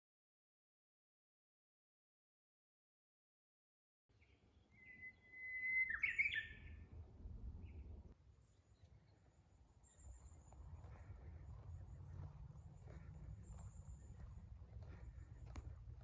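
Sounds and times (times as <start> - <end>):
songbird singing: 4.1 - 6.9, 7.5 - 16.0
faint high thin calls: 4.8 - 6.7
low rumble: 6.7 - 8.2.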